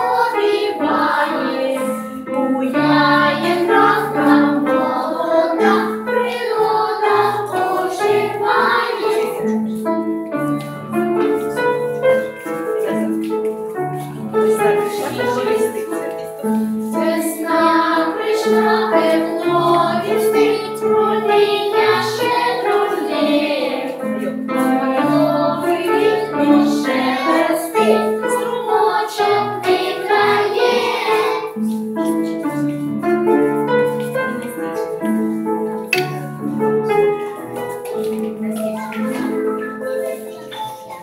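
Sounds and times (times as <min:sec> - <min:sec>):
children singing: 0:00.0 - 0:09.7, 0:14.2 - 0:16.2, 0:16.8 - 0:31.7
instrumental accompaniment with bass: 0:35.8 - 0:41.0.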